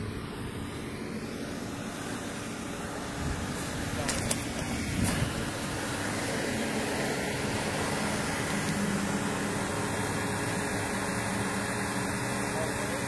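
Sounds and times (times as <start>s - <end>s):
car engines idling: 0.0s - 13.0s
street traffic: 0.0s - 13.0s.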